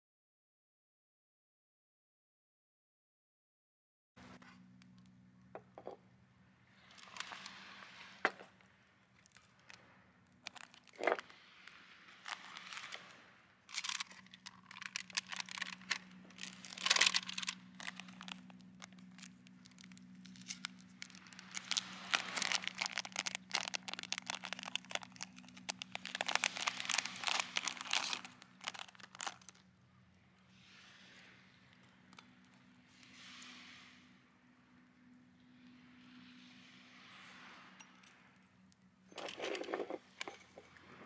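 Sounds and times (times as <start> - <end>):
crinkling and rustling: 6.9 - 29.7, 39.1 - 41.0.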